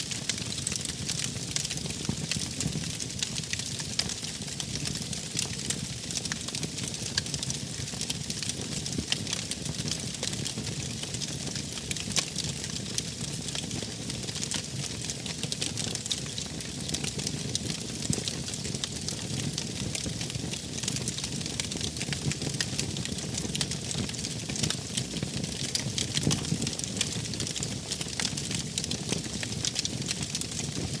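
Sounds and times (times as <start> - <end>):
wood fire crackling: 0.1 - 7.2, 10.9 - 31.0.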